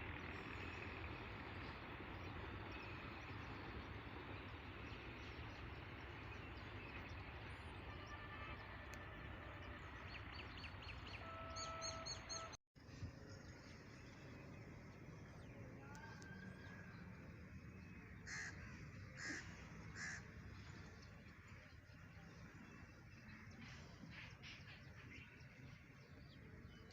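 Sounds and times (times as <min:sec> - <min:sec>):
crow cawing: 0:18.3 - 0:20.3.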